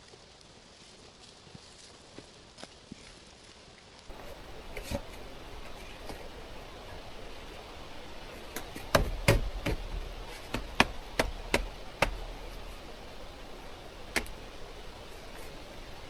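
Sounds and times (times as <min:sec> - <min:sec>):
sharp irregular knocks: 0:04.1 - 0:16.0.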